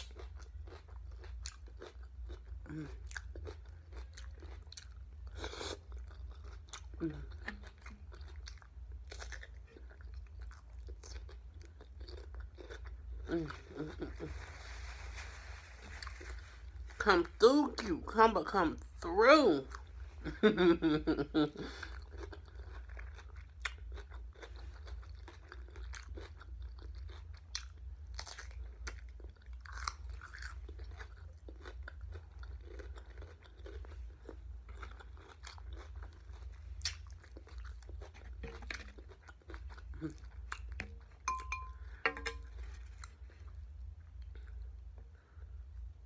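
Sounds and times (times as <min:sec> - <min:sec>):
chewing crisp cucumber: 0:00.0 - 0:14.8, 0:21.0 - 0:45.3
steady low hum: 0:27.4 - 0:46.0
fork clinking on dish: 0:41.3 - 0:42.5.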